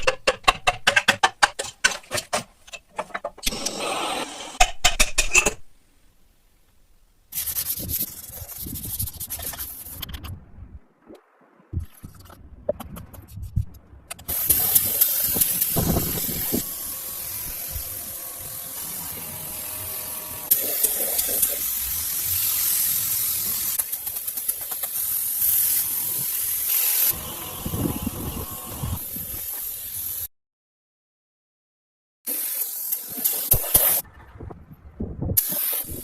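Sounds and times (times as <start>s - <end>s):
hissing spray: 14.2s - 30.3s, 32.3s - 34.0s, 35.4s - 36.0s.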